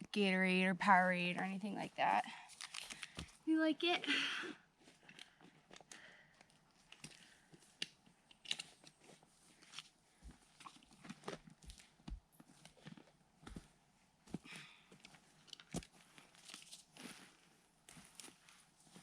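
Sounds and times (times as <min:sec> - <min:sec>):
faint clicks and crackles: 0:02.4 - 0:03.4, 0:04.8 - 0:13.7, 0:14.9 - 0:19.0.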